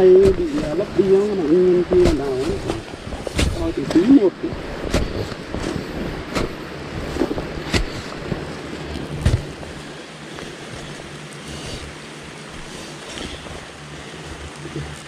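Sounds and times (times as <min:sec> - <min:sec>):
digging tool striking earth: 0:00.0 - 0:09.8
steady hiss: 0:00.0 - 0:15.0.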